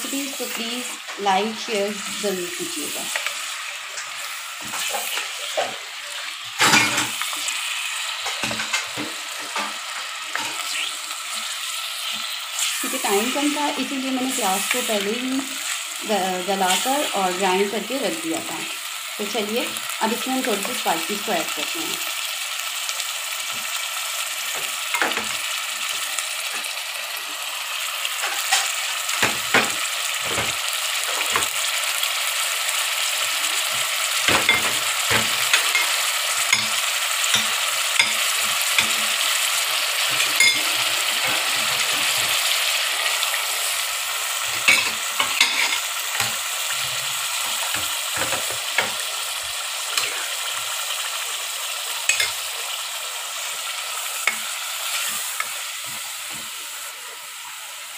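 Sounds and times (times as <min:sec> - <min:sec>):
chicken sizzling in hot oil: 0:00.0 - 0:57.9
spatula scraping and knocking pan: 0:44.5 - 0:49.0.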